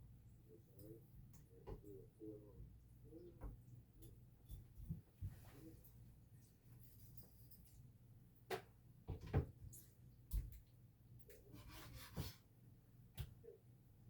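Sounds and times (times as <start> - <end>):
low steady hum: 0.0 - 14.0
kitchen knocks and taps: 8.5 - 9.6.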